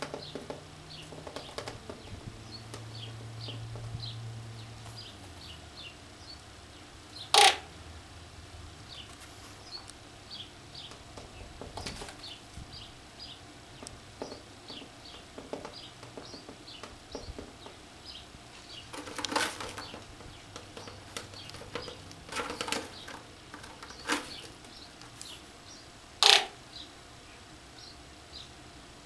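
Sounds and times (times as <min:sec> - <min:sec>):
small birds chirping: 0:00.0 - 0:28.6
sharp rattling clatters: 0:13.7 - 0:25.4.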